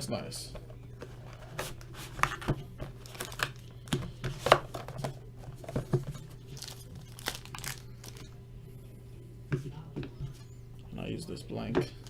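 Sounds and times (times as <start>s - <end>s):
plastic wrap crinkling and tearing: 1.8s - 3.7s, 6.2s - 8.3s.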